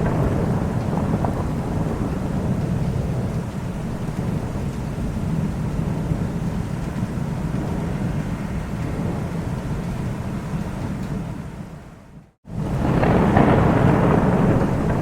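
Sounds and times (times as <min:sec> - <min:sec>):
low rumble of thunder: 0:00.0 - 0:15.0
rain falling: 0:00.0 - 0:15.0.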